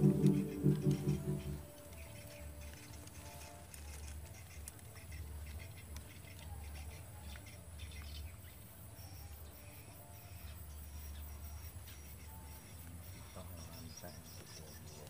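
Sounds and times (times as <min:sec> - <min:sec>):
low rumble: 0:00.0 - 0:01.7
small birds chirping: 0:00.0 - 0:15.0.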